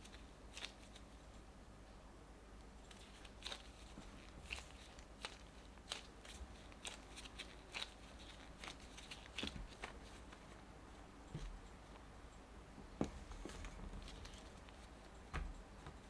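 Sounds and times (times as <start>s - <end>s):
kitchen things clicking and crinkling: 2.9s - 10.5s.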